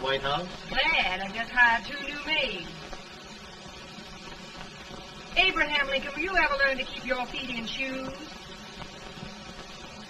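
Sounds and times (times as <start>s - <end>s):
film soundtrack hiss: 0.0s - 10.0s.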